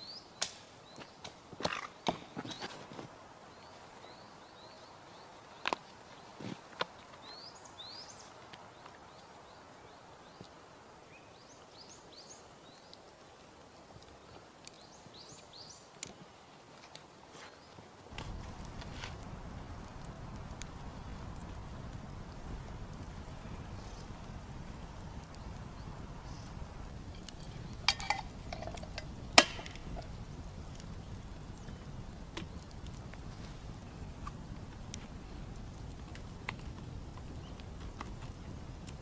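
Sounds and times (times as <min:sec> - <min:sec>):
outdoor background noise: 0:00.0 - 0:39.0
small birds chirping: 0:03.5 - 0:13.1, 0:17.0 - 0:34.9, 0:36.4 - 0:38.0
low rush of noise: 0:18.1 - 0:39.0.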